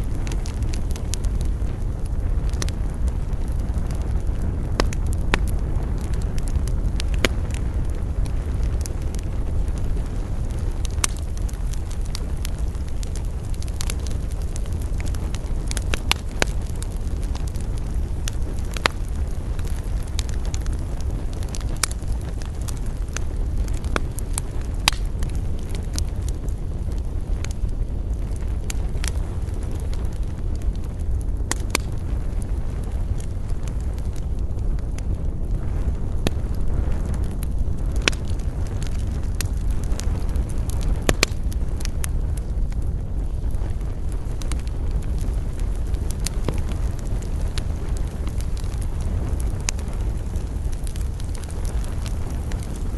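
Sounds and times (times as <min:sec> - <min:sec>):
low rumble of burning: 0:00.0 - 0:52.9
wood fire crackling: 0:00.0 - 0:52.9.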